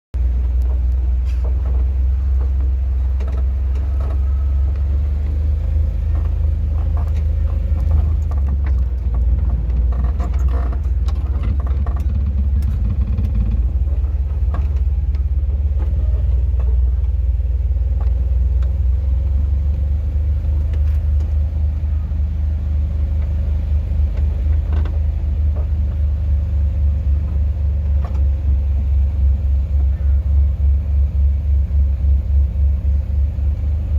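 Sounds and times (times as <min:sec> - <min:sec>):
car driving rumble: 0:00.1 - 0:33.9
faint knocks and clicks: 0:06.1 - 0:17.2.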